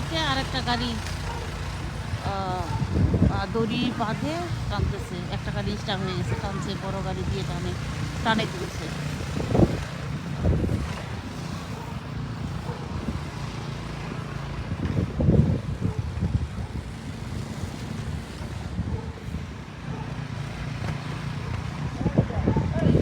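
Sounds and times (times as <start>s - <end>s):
car engine humming: 0.0s - 14.4s
wind buffeting microphone: 0.0s - 23.0s.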